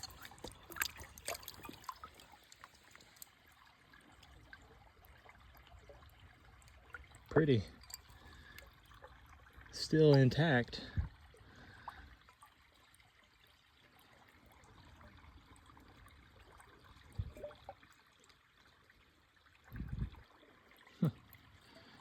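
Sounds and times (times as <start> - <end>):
creek trickling: 0.0 - 22.0.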